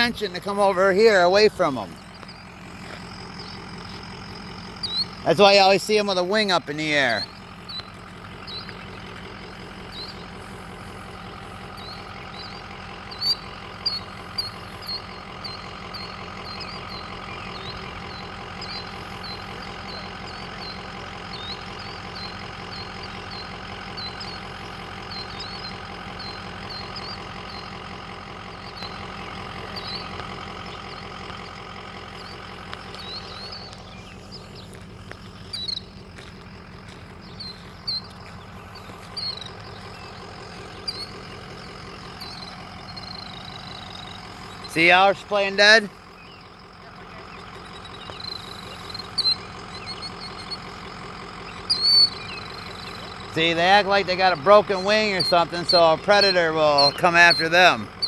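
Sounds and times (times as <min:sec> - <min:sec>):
vehicle engine idling: 0:00.0 - 0:58.0
killdeer short high calls: 0:11.5 - 0:27.9, 0:35.5 - 0:35.9, 0:44.4 - 0:50.8, 0:51.4 - 0:58.0.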